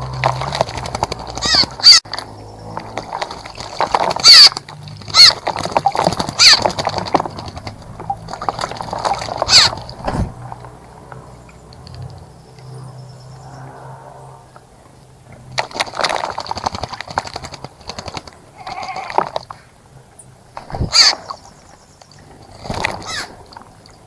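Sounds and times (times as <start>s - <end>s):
bird cawing: 1.4s - 2.0s, 6.4s - 6.7s, 9.2s - 10.4s, 20.6s - 21.4s, 23.0s - 23.4s.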